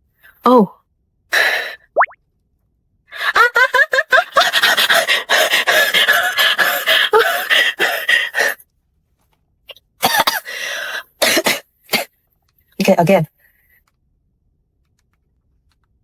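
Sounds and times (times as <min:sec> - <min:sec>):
woman panting breathy outbursts: 0:04.4 - 0:08.6, 0:10.4 - 0:11.1.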